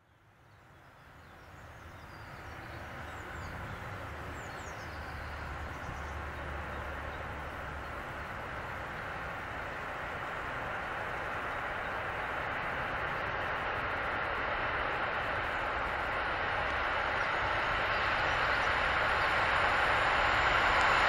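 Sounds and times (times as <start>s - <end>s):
approaching train rumble: 0.0s - 21.0s.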